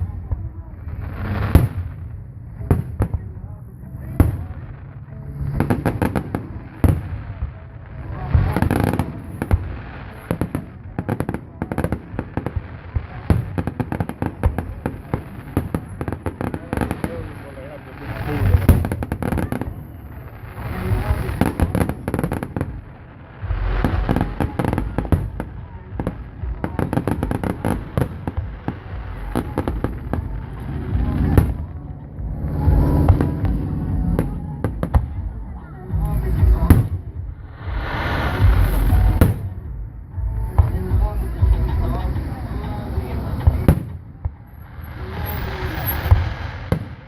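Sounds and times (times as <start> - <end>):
fireworks bangs: 0.0 - 47.0
fireworks crackling: 0.0 - 47.0
crackling firework pops: 36.0 - 47.0.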